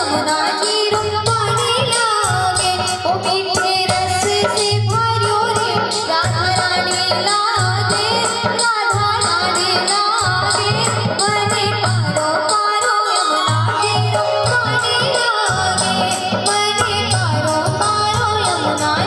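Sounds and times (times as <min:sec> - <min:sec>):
devotional song with instruments: 0:00.0 - 0:19.0
rattling hand percussion: 0:00.0 - 0:19.0.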